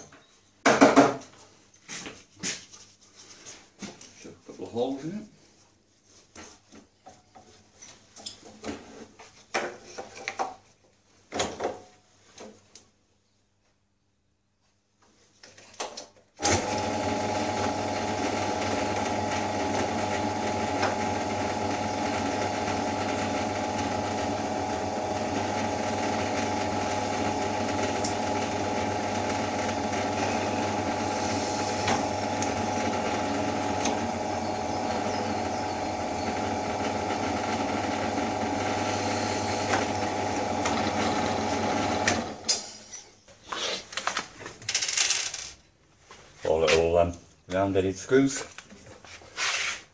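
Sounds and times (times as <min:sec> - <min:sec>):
electric drill motor running: 0:16.4 - 0:42.5.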